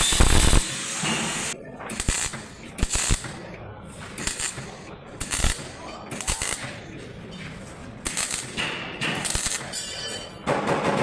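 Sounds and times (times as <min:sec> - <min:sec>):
air tool hissing: 0:00.0 - 0:03.2.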